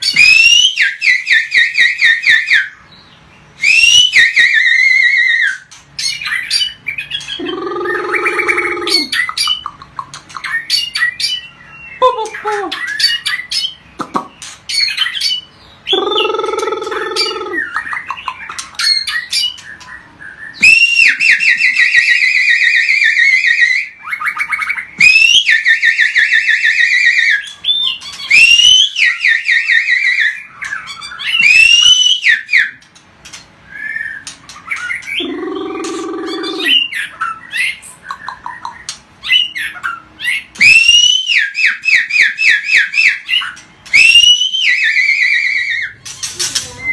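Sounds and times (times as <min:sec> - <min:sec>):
songbird trilling and whistling: 0:00.0 - 0:46.9
harsh low bird call: 0:07.4 - 0:09.3, 0:35.2 - 0:37.1.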